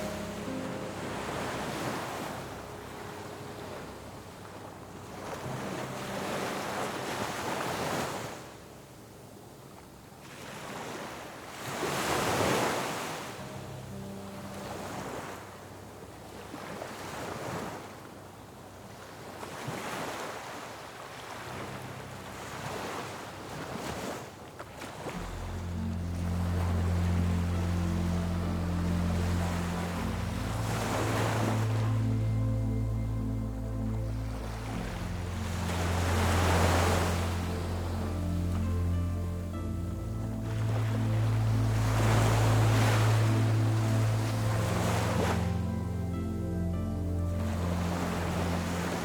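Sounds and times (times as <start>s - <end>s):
ocean surf breaking on beach: 34.3s - 38.4s, 40.4s - 45.7s.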